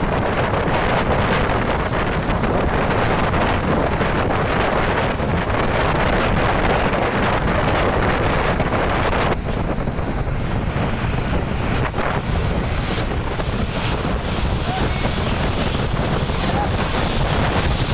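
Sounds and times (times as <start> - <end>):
road traffic rumble: 0.0 - 17.9
wind rushing on microphone: 0.0 - 17.9.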